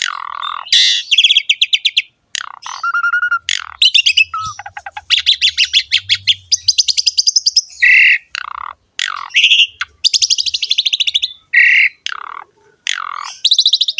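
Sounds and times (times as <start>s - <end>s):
starling chattering trills: 2.4s - 11.2s
starling whistled notes: 2.6s - 8.2s.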